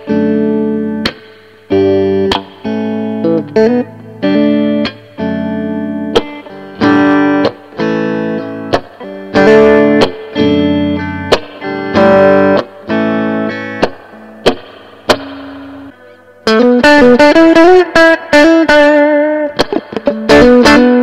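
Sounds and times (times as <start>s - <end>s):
clean electric guitar chords: 0.0s - 21.0s
muted guitar slaps: 1.0s - 1.4s, 2.3s - 2.8s, 6.1s - 7.7s, 8.7s - 10.6s, 11.3s - 12.8s, 13.8s - 15.9s, 19.6s - 20.4s.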